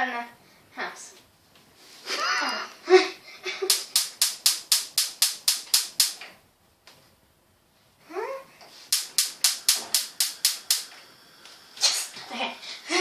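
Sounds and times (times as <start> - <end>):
gas hob igniter clicking: 3.7 - 6.3, 8.9 - 11.6.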